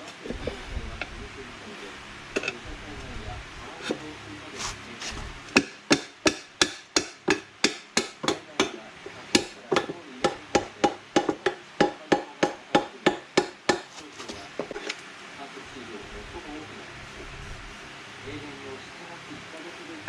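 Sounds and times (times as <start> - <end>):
hammer blows ringing: 9.4 - 14.0.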